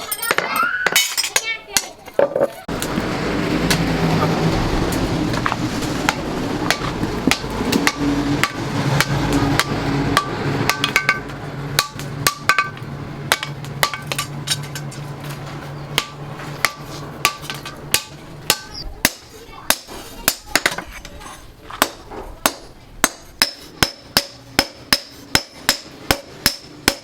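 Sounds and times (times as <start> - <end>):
hammer striking steel: 6.1 - 15.0, 15.9 - 20.9, 21.8 - 27.0.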